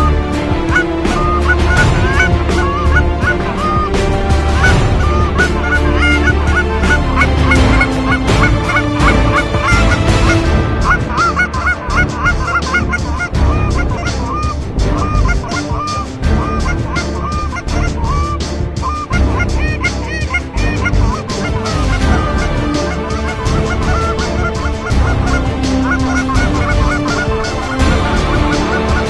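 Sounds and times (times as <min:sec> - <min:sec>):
geese honking: 0:00.0 - 0:29.0.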